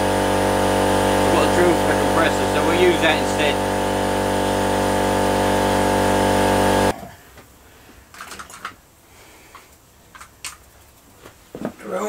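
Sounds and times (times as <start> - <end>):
electric air compressor running: 0.0 - 6.9
faint handling clicks and knocks: 8.1 - 8.8.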